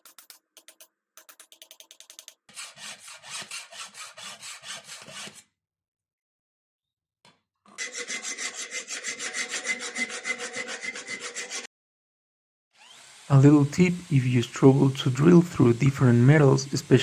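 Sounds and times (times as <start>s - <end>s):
hand tool rasping on steel: 0.0s - 5.4s, 7.8s - 11.7s.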